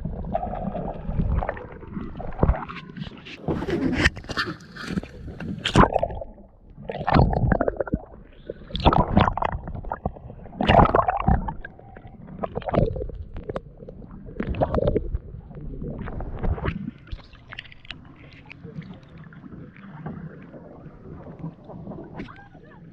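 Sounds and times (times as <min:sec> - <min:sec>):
water splashing against boat hull: 0:08.6 - 0:22.9.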